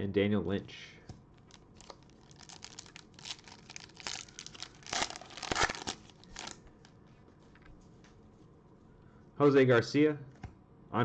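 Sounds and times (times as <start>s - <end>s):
foil wrapper tearing and crinkling: 1.5s - 6.6s.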